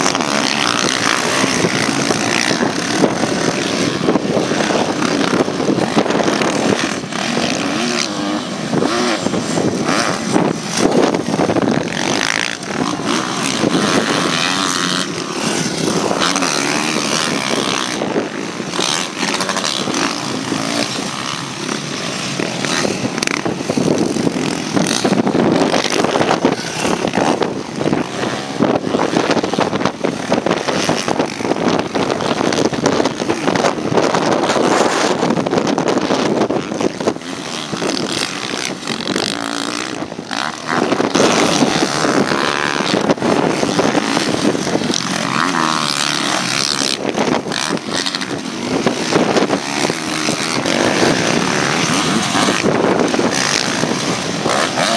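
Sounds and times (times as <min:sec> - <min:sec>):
motocross bike engines revving: 0:00.0 - 0:54.9.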